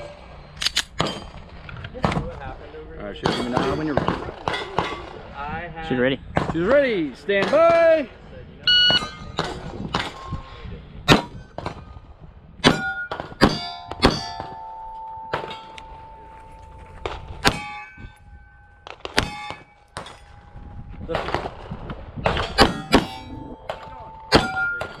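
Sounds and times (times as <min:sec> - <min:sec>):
steel targets ringing: 0:12.6 - 0:20.9, 0:22.4 - 0:25.0
pistol shots: 0:18.8 - 0:20.2.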